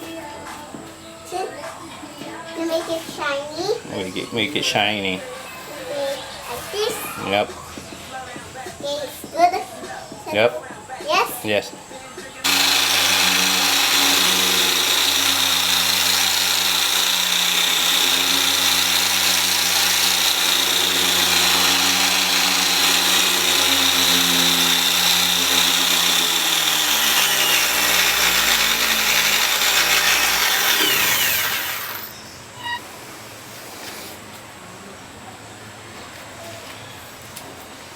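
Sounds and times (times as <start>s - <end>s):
electric polisher running: 12.4s - 32.1s.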